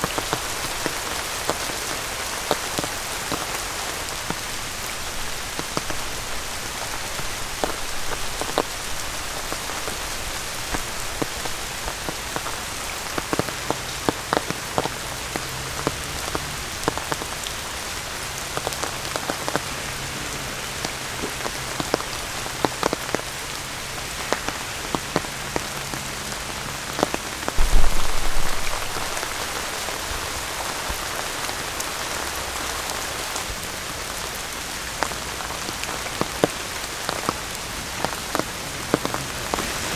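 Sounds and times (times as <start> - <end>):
raindrops ticking: 0.0 - 33.0
rain falling: 0.0 - 39.9
brief low rumble: 27.6 - 29.8.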